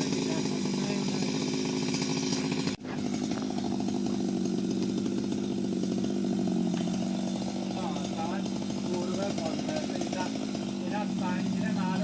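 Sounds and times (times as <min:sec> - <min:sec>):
chainsaw running at high speed: 0:00.0 - 0:12.0.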